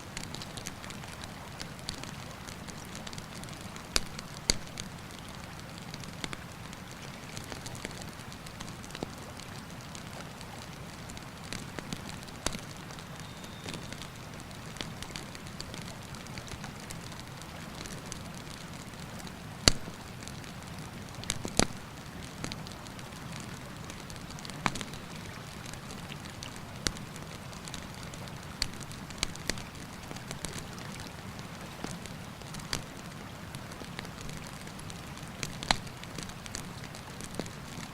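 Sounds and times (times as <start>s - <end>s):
campfire crackling and popping: 0.1s - 37.9s.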